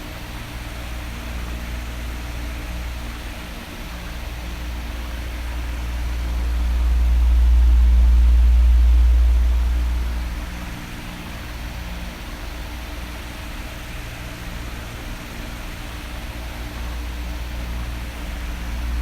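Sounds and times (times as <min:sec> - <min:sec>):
electric fan running: 0:00.0 - 0:19.0
low rumble of air: 0:04.0 - 0:12.9, 0:16.3 - 0:19.0.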